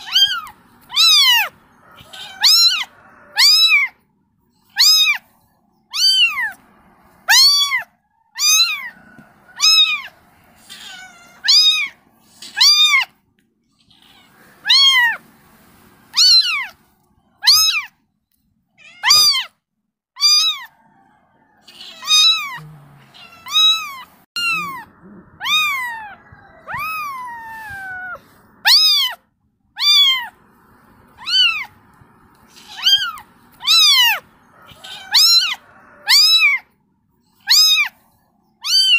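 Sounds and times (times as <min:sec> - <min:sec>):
kitten meowing: 0:00.0 - 0:03.9, 0:04.7 - 0:05.2, 0:05.9 - 0:06.6, 0:07.2 - 0:08.9, 0:09.6 - 0:13.1, 0:13.8 - 0:15.2, 0:16.1 - 0:16.8, 0:17.4 - 0:17.9, 0:18.8 - 0:19.5, 0:20.2 - 0:20.7, 0:21.7 - 0:29.2, 0:29.8 - 0:30.4, 0:31.1 - 0:31.8, 0:32.4 - 0:34.2, 0:34.8 - 0:36.6, 0:37.4 - 0:38.0, 0:38.6 - 0:38.9.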